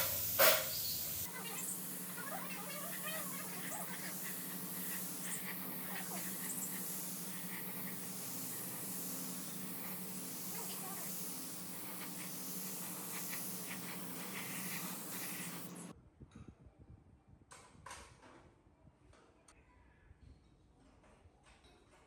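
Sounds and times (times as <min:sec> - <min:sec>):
air hissing from workshop tool: 0:00.0 - 0:15.9.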